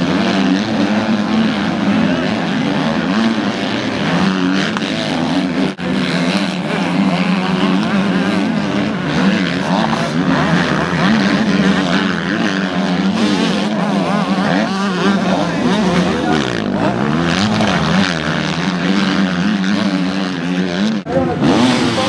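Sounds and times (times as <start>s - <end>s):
motocross bike engines revving: 0.0s - 22.0s.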